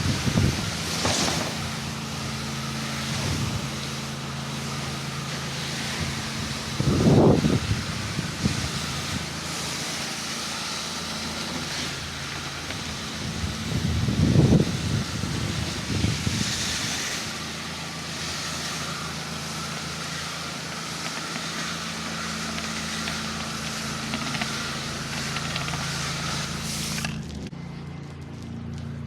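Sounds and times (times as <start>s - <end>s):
pressure washer spraying water: 0.0s - 27.5s
engine humming: 0.0s - 29.0s.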